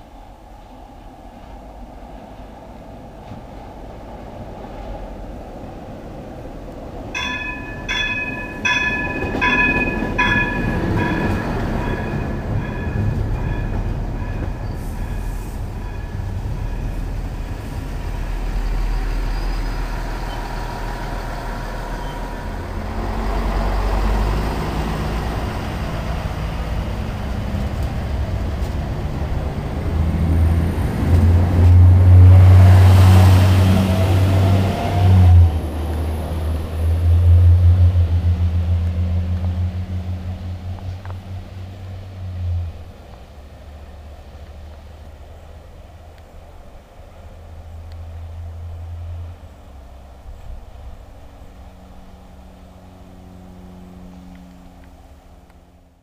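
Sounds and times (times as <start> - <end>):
train wheels rushing on rail: 0.0 - 55.9
rising engine whine: 6.9 - 45.7, 47.0 - 56.0
bell-like ringing tone: 7.2 - 17.4
diesel engine drone: 7.2 - 56.0.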